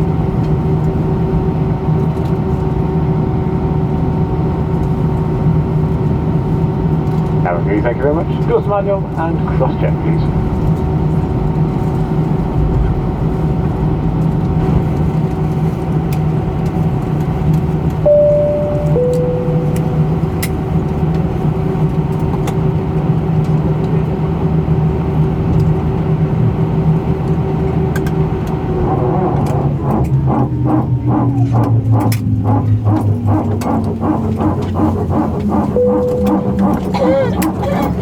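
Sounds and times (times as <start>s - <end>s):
aircraft cabin hum: 0.0s - 38.0s
two-tone cabin chime: 18.1s - 20.9s, 35.8s - 38.0s.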